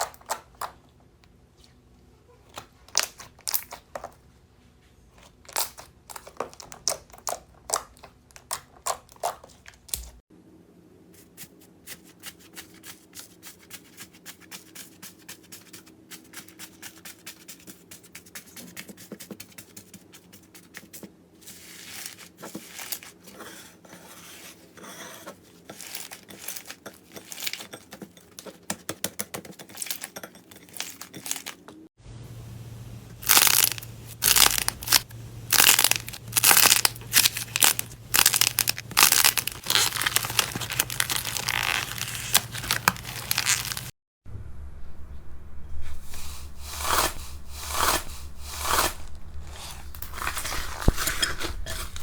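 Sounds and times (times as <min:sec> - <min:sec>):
slime squeezed by hand: 0:33.2 - 0:43.9.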